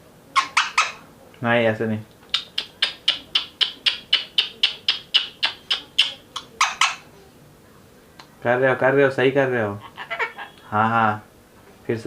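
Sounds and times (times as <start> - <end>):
parakeet calling: 0.4 - 1.0, 2.3 - 7.1, 9.6 - 11.1.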